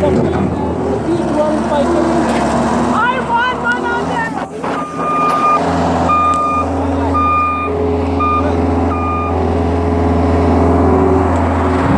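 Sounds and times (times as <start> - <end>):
heavy vehicle engine rumble: 0.0 - 11.9
back-up alarm beeping: 4.7 - 9.4.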